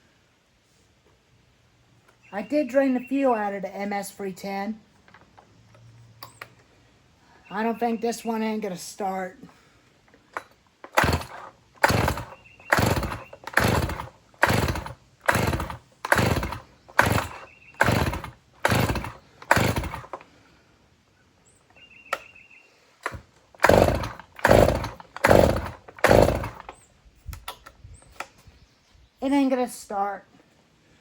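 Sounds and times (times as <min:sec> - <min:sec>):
chainsaw starter rope pulled: 0:09.4 - 0:20.6, 0:23.0 - 0:28.4.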